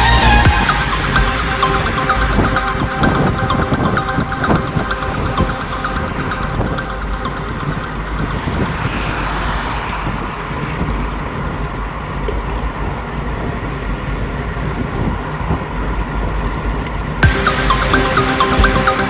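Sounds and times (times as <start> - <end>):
music: 0.0 - 8.8, 17.2 - 19.0.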